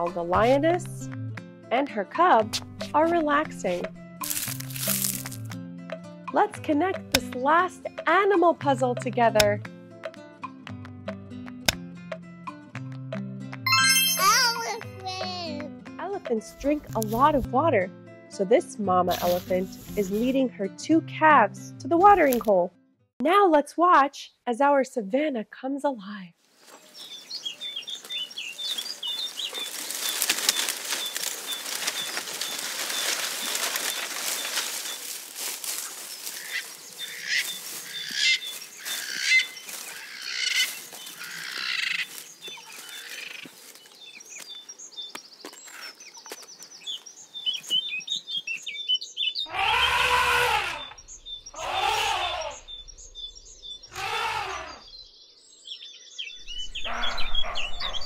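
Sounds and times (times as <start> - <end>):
birds chirping: 26.7 - 58.0
loud animal calls: 36.3 - 43.5, 49.4 - 52.8, 53.9 - 55.0.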